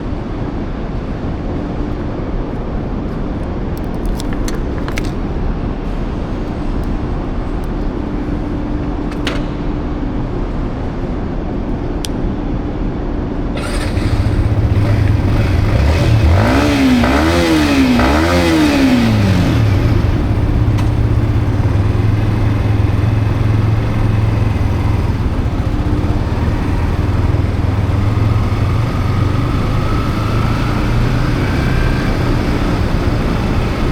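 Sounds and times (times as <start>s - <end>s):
motorcycle engine revving: 13.6s - 33.9s.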